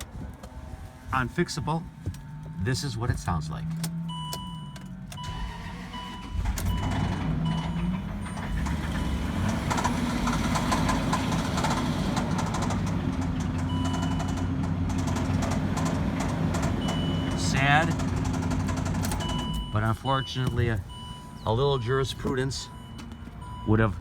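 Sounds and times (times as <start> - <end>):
blown engine knocking: 6.4 - 19.8.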